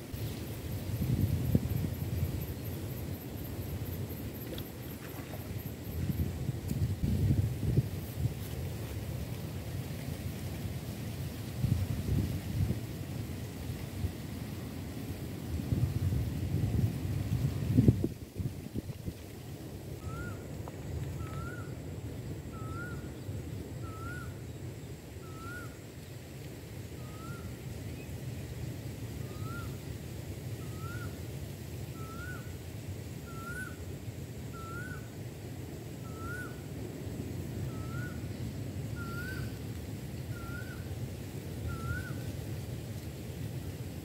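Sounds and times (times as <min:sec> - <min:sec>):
bird rising whistled note: 0:20.0 - 0:20.4, 0:21.3 - 0:21.7, 0:22.5 - 0:23.1, 0:23.8 - 0:24.3, 0:25.2 - 0:25.8, 0:34.5 - 0:35.0, 0:36.0 - 0:36.6, 0:39.0 - 0:39.5, 0:41.7 - 0:42.2.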